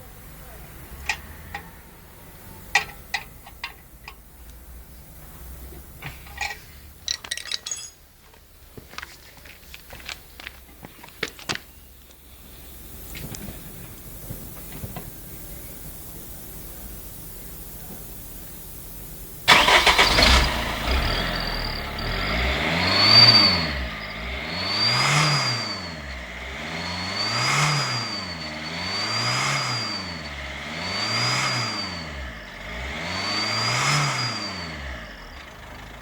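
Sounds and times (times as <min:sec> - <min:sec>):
car engine revving: 0:19.2 - 0:36.0
high exhaust whistle: 0:19.5 - 0:35.4.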